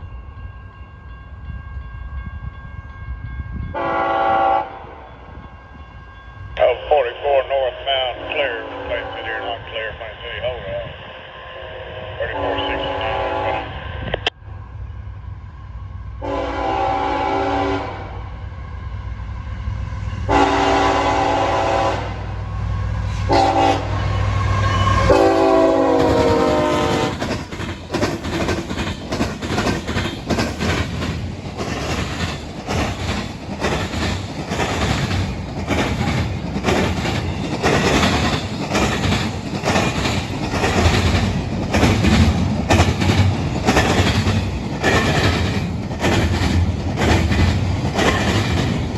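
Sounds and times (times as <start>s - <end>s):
locomotive air horn: 3.8s - 5.0s, 12.2s - 13.7s, 16.2s - 18.2s, 20.3s - 22.3s, 23.1s - 27.2s
train wheels clickety-clack: 25.8s - 48.9s.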